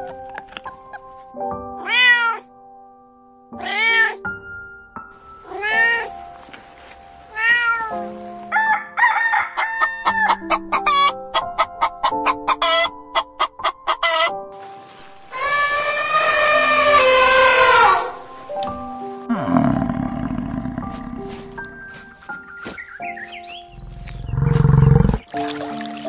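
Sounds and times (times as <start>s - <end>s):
soft background music: 0.0s - 26.0s
cat meowing: 1.8s - 2.5s, 3.6s - 4.2s, 5.4s - 6.1s, 7.3s - 8.0s
rooster and chickens calling: 8.5s - 14.4s, 15.1s - 18.3s.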